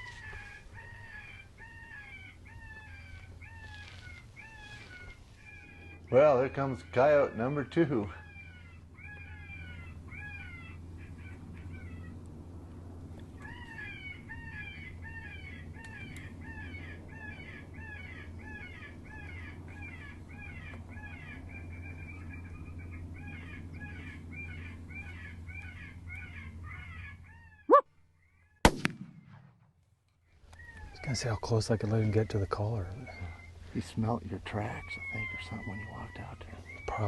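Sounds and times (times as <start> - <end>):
loud crack: 28.6 - 29.7.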